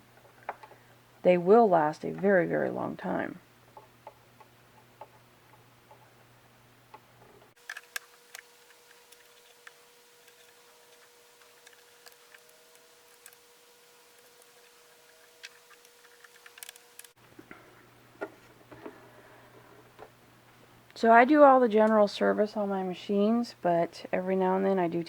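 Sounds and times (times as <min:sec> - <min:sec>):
faint steady hum: 0:00.0 - 0:25.0
small parts clicking and tapping: 0:03.7 - 0:06.2, 0:06.9 - 0:17.2.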